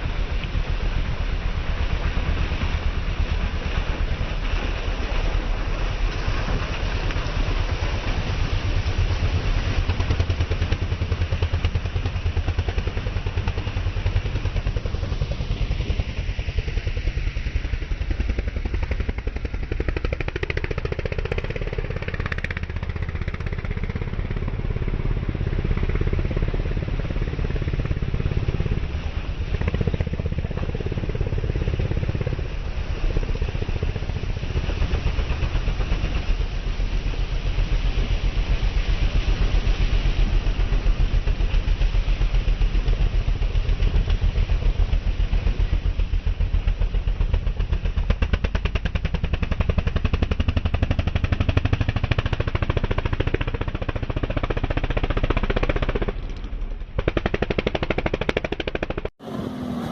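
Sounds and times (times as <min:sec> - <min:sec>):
racing motorcycle engines: 0:58.6 - 0:59.9.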